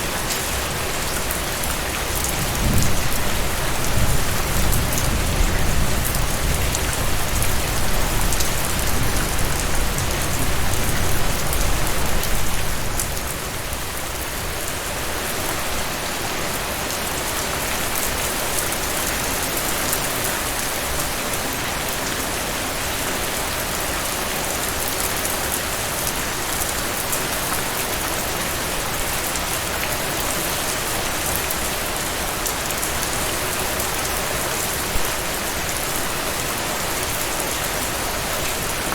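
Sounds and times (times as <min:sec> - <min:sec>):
heavy rain: 0:00.0 - 0:38.9
low rumble of thunder: 0:02.3 - 0:13.1.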